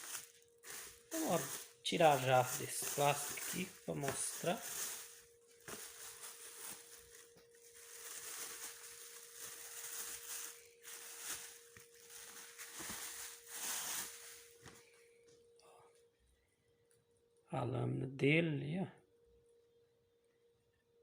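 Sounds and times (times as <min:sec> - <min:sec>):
plastic wrapping crinkling: 0:00.0 - 0:15.0
faint steady hum: 0:00.0 - 0:21.0.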